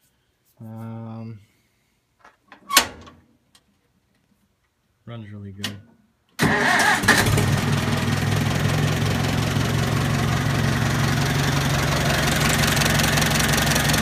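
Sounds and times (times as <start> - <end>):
tractor engine idling: 6.6 - 14.0.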